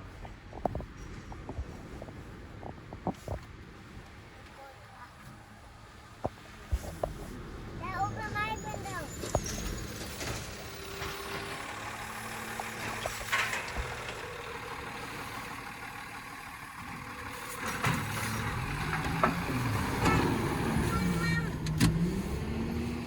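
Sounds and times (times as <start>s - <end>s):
garbage truck engine running: 6.6s - 23.0s
sharp knocks and clanks: 17.6s - 20.8s.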